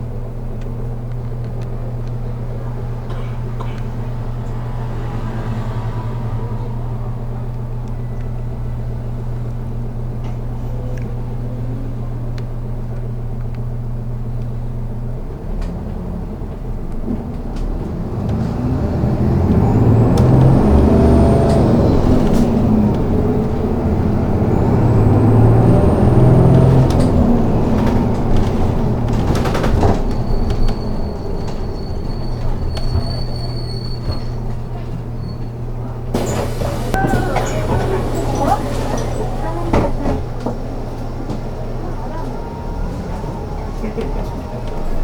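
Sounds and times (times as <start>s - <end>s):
bus engine accelerating: 0.0s - 45.0s
knocks and rattles: 26.0s - 34.6s.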